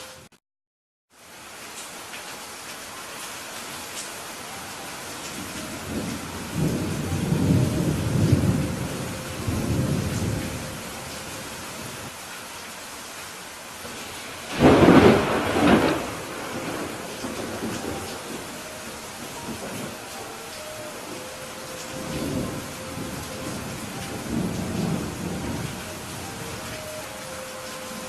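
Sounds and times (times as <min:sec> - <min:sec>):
steady rain: 0:01.1 - 0:28.0
rolling thunder: 0:05.7 - 0:11.1, 0:13.9 - 0:20.1, 0:21.8 - 0:26.7
sharp thunderclap: 0:13.9 - 0:18.4.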